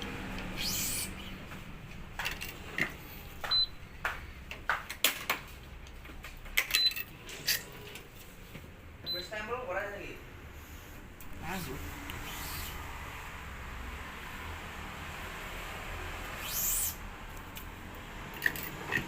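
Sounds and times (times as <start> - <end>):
string zipping through: 0.4 - 1.5, 12.1 - 13.0, 16.2 - 17.1
clamps clicking and knocking: 2.2 - 3.0, 18.4 - 19.0.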